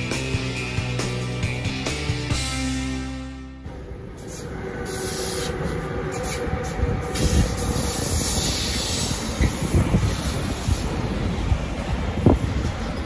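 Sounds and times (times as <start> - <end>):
freight wagons rumbling over rails: 3.6 - 13.0.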